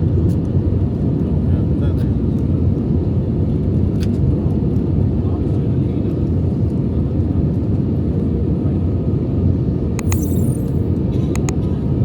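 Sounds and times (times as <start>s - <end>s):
short clicks: 10.0s - 10.8s.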